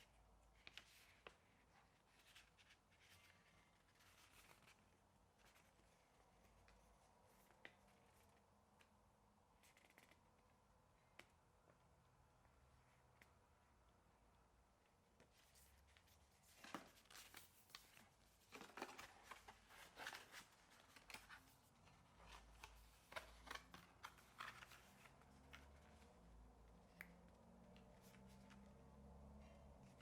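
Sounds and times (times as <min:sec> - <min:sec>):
packaging rustling and crinkling: 0:16.5 - 0:25.8.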